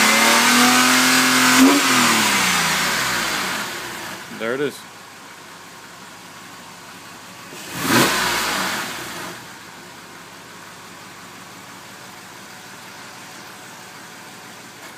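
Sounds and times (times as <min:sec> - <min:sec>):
car engine revving: 0:00.0 - 0:04.3, 0:07.4 - 0:09.6
car engine idling: 0:00.0 - 0:14.9.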